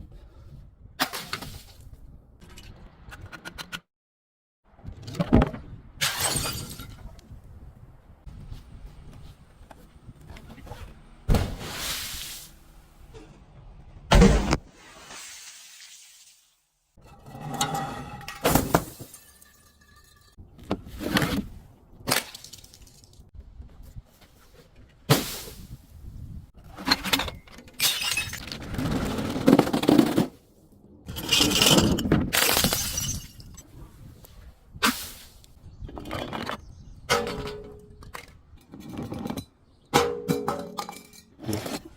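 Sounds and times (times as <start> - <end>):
glass bottles shattering: 6.0 - 7.0, 17.5 - 20.4, 27.8 - 28.5, 31.2 - 33.6
glass crunching and grinding: 17.2 - 20.4.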